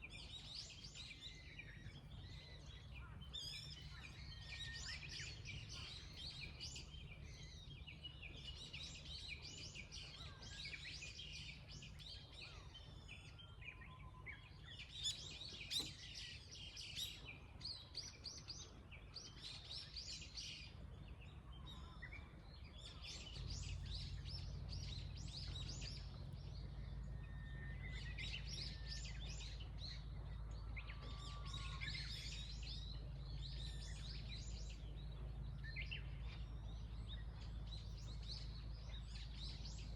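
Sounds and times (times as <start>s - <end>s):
small birds singing: 0.0s - 39.9s.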